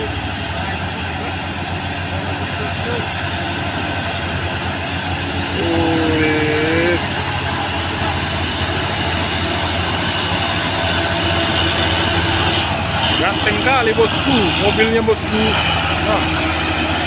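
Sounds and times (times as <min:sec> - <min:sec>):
diesel truck engine under load: 0:00.0 - 0:17.0
two-tone truck horn: 0:05.4 - 0:17.0.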